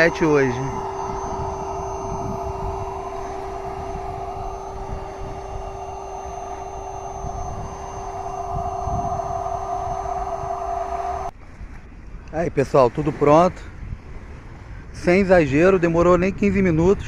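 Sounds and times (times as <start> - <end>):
electric air pump running: 0.0 - 11.3.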